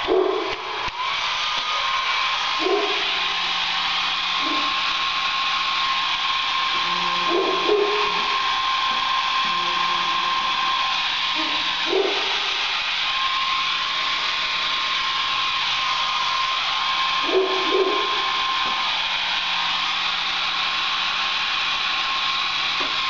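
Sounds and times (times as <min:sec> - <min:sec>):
dog barking: 0:00.0 - 0:00.7, 0:02.6 - 0:03.1, 0:04.4 - 0:04.8, 0:07.2 - 0:08.3, 0:11.4 - 0:12.4, 0:17.2 - 0:18.2
hair dryer blowing: 0:00.0 - 0:23.0.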